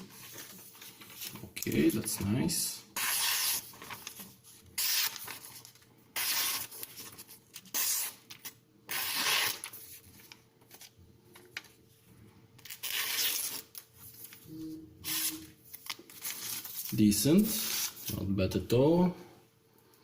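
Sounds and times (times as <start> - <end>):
knife slicing paper: 3.0 - 4.2, 4.8 - 5.5, 6.2 - 9.9, 12.6 - 13.8.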